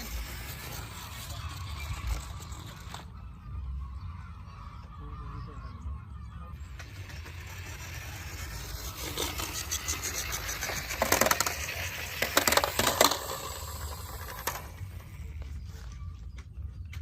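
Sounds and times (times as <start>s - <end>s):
toy cars clicking and rattling: 0.0s - 3.2s, 6.6s - 15.5s.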